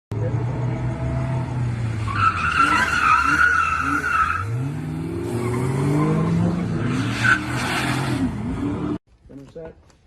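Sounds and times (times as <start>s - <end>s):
car engine revving: 0.1s - 9.0s
car tyres squealing: 1.3s - 9.0s.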